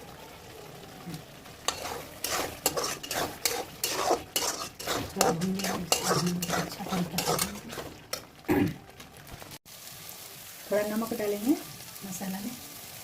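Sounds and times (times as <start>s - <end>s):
hot oil sizzling: 0.0s - 13.0s
utensil stirring and scraping: 1.7s - 8.3s.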